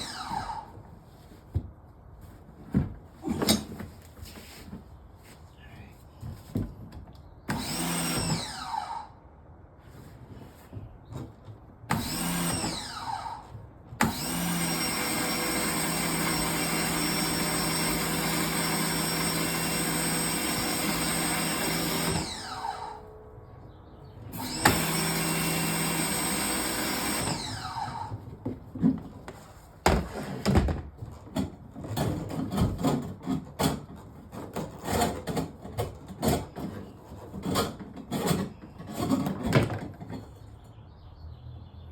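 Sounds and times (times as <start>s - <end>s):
power tool motor whining: 0.0s - 0.8s, 7.5s - 9.2s, 11.9s - 23.1s, 24.3s - 28.2s.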